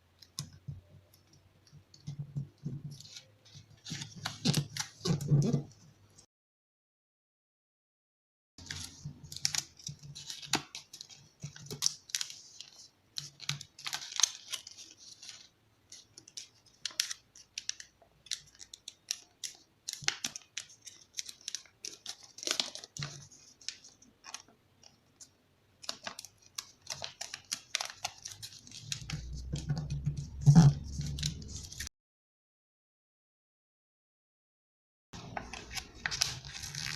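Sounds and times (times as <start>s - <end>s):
paper rustling and crinkling: 2.8s - 5.8s, 8.6s - 31.9s, 35.2s - 36.9s.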